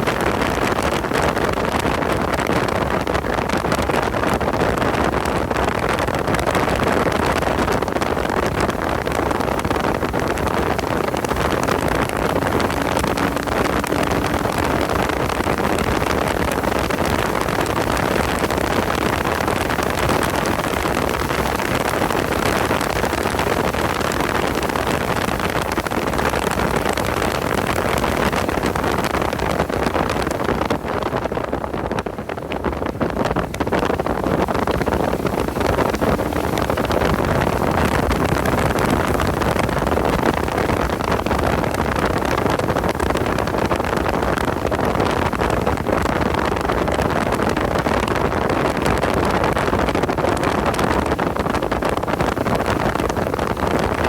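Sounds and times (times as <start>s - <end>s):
wind noise on microphone: 0.0s - 54.0s
car engine under load: 8.4s - 25.6s.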